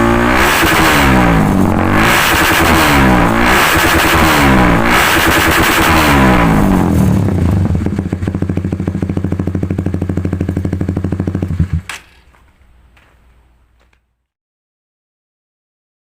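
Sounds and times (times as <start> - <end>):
motorcycle engine idling: 0.6 - 12.2.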